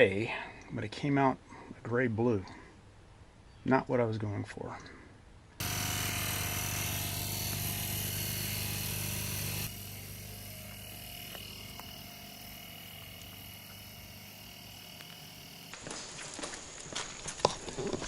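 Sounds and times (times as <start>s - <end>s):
small motor buzzing hum: 5.6s - 15.9s.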